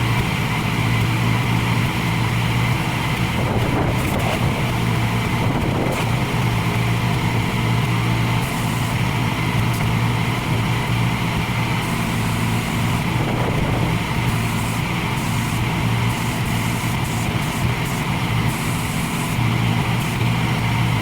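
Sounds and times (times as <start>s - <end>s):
pressure washer running: 0.0s - 21.0s.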